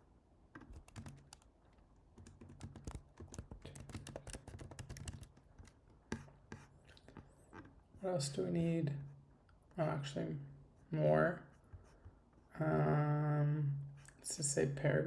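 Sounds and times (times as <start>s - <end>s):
typing on a computer keyboard: 0.6s - 6.6s.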